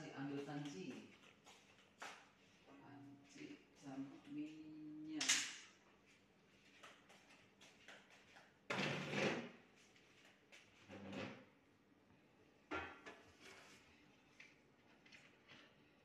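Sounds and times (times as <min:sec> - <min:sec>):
kitchen knocks and scrapes: 0:08.7 - 0:09.6, 0:12.7 - 0:13.8.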